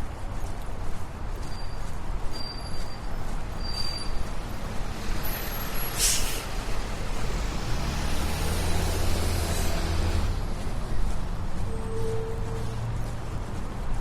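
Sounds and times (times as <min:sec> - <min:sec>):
street traffic passing: 0:00.0 - 0:14.0
heavy vehicle engine drone: 0:04.4 - 0:13.8
short hiss: 0:05.9 - 0:06.6.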